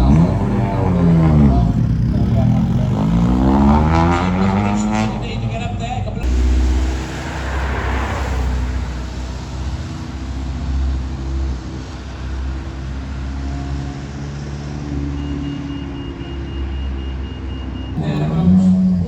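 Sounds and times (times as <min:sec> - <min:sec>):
rally car engine idling: 0:00.0 - 0:19.0
steady high-pitched tone: 0:06.2 - 0:11.4.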